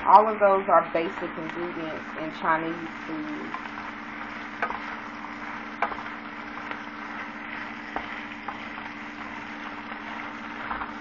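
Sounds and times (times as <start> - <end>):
chicken sizzling in a pan: 0.0 - 11.0
grease popping and crackling: 2.8 - 11.0.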